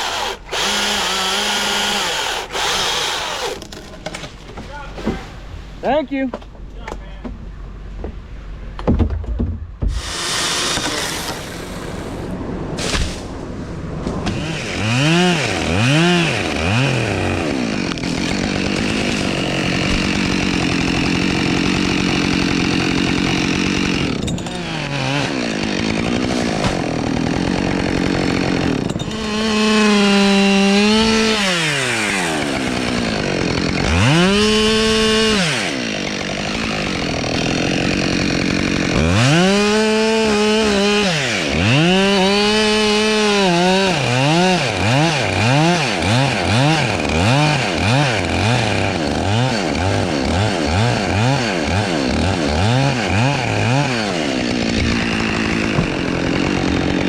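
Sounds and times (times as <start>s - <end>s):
chainsaw revving: 0.0s - 3.8s, 9.9s - 12.3s, 14.3s - 57.0s.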